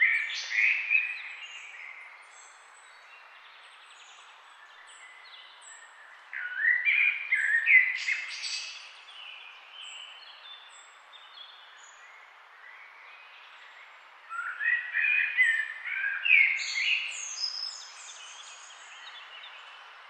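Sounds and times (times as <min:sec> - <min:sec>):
steady background hiss: 0:00.0 - 0:20.0
birds chirping and singing: 0:13.3 - 0:19.8.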